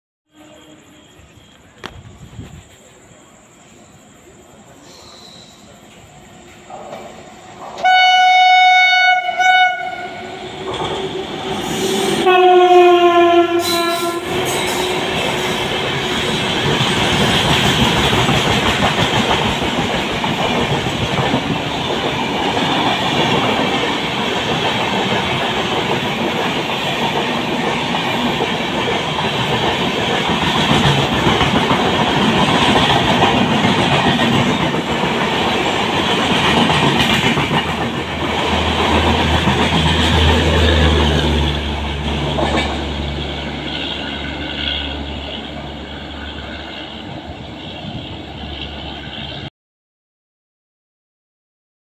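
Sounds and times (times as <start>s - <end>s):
train horn blasts: 0.3s - 1.2s, 7.8s - 10.5s, 11.6s - 15.6s
train wheels rumbling on rail: 0.5s - 49.5s.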